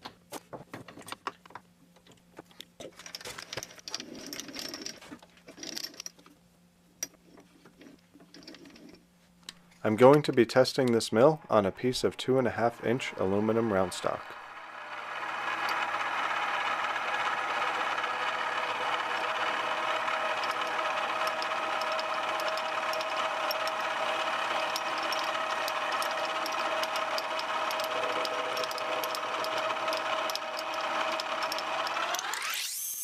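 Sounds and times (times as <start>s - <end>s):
milling machine motor whine: 10.9s - 33.0s
end mill ticking on metal: 18.7s - 32.0s.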